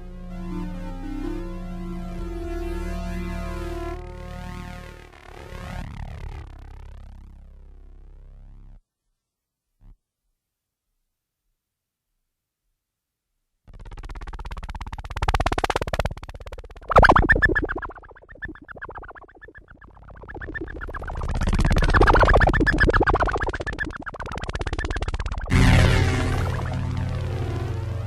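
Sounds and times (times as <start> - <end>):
sustained synth chord: 0.0 - 8.8, 16.8 - 28.0
whooshing synth tones: 16.8 - 28.0.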